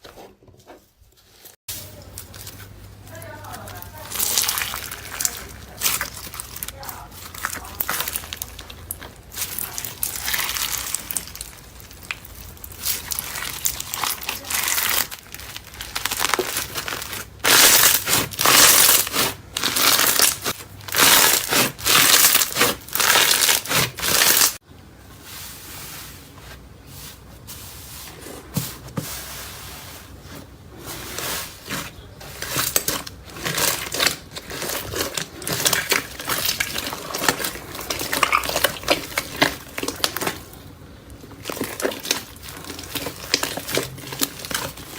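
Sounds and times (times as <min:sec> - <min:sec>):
slime squeezed by hand crackling: 0:04.0 - 0:24.6.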